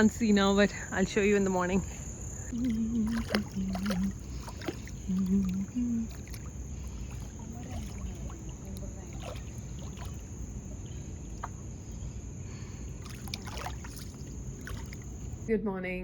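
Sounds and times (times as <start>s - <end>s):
voices: 0.0s - 12.1s
high insect trill: 0.0s - 15.5s.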